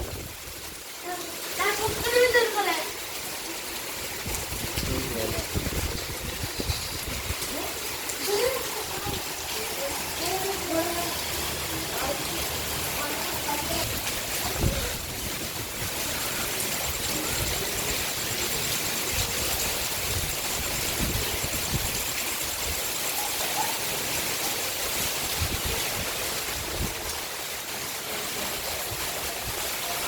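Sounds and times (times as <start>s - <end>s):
heavy rain hissing: 0.0s - 30.0s.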